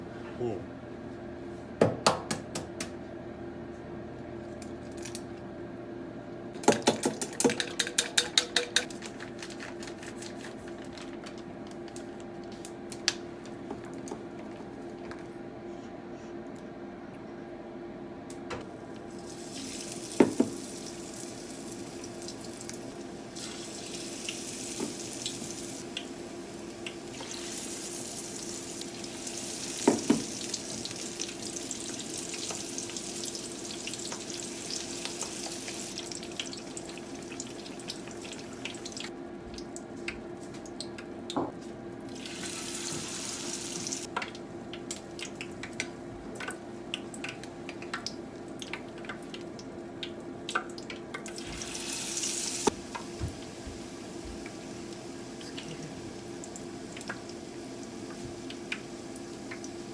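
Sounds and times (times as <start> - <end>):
kitchenware knocking: 6.7 - 8.9
water running from tap: 19.0 - 39.1, 42.1 - 44.1, 50.6 - 59.9.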